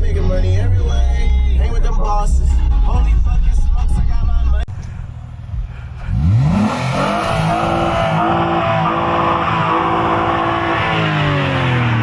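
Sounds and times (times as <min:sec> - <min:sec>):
car engine revving: 0:04.7 - 0:12.0.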